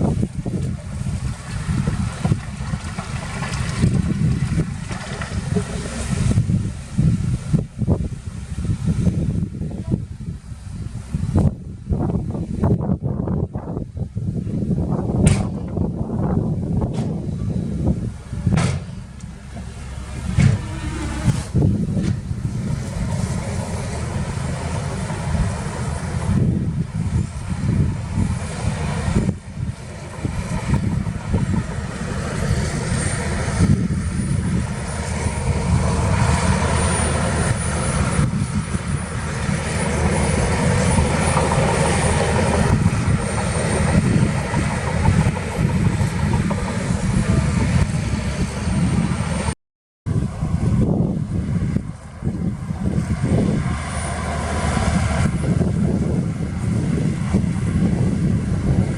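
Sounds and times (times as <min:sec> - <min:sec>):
diesel machinery engine running: 0:00.0 - 0:11.1, 0:15.8 - 0:58.9
thin high whine: 0:19.8 - 0:21.8.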